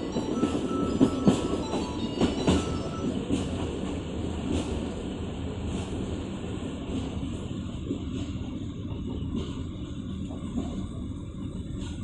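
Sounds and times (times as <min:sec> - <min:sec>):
train wheels knocking on rail joints: 0:00.0 - 0:04.9, 0:07.8 - 0:11.0.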